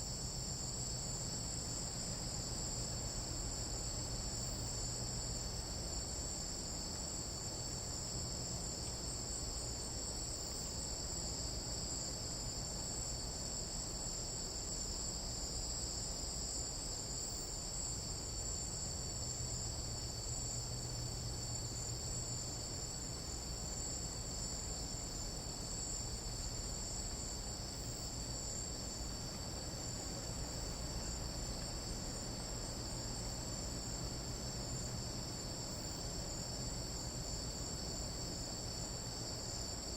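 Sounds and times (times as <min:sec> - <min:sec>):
insects chorusing: 0:00.0 - 0:39.9.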